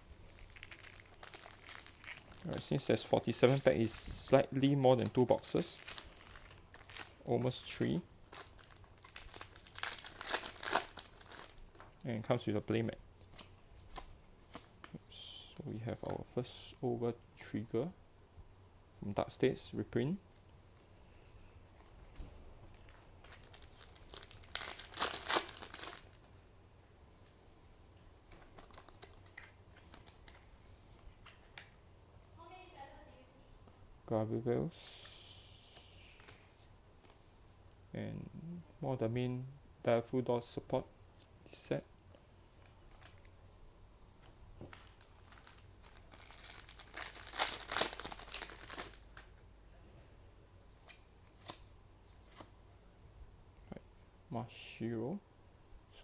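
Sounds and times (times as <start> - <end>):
foil wrapper crinkling and tearing: 0.0 - 3.9, 4.6 - 11.9, 22.7 - 26.3, 44.7 - 49.3.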